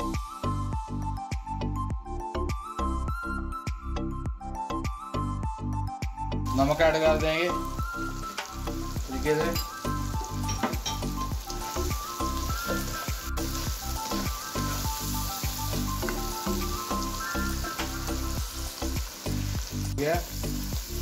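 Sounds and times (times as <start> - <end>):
background music: 0.0 - 21.0
food sizzling in oil: 6.5 - 21.0.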